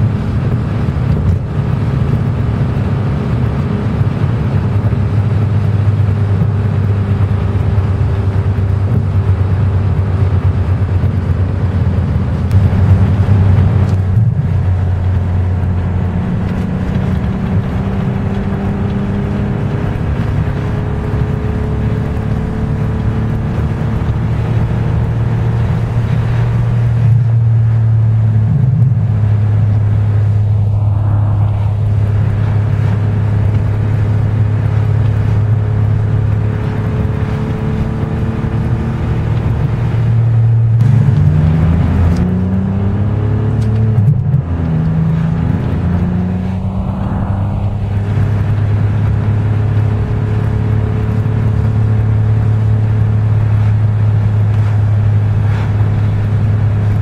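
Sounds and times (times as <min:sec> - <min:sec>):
car engine from inside cabin: 0:00.0 - 0:57.0
road noise: 0:00.0 - 0:57.0.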